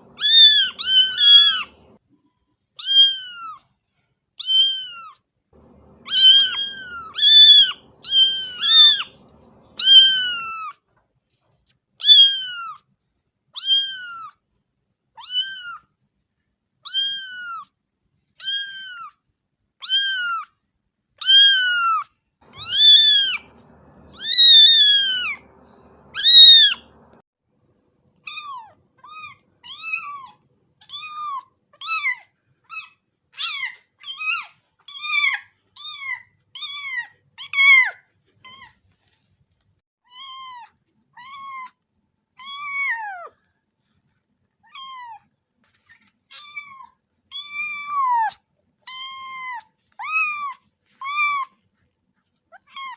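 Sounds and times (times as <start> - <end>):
cat meowing: 0.0 - 2.0, 2.8 - 3.6, 4.4 - 10.8, 12.0 - 12.8, 13.6 - 14.3, 15.2 - 15.8, 18.4 - 19.1, 19.8 - 20.5, 21.2 - 27.2, 28.3 - 38.7, 42.4 - 43.4, 46.3 - 51.5.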